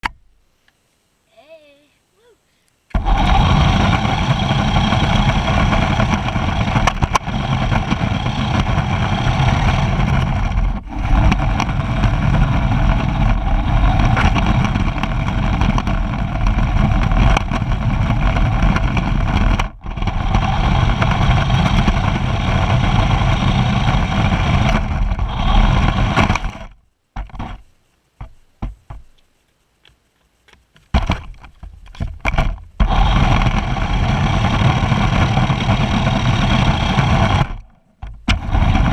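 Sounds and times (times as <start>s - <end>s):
race car engine running: 3.0s - 26.8s, 32.8s - 37.7s, 38.3s - 38.9s.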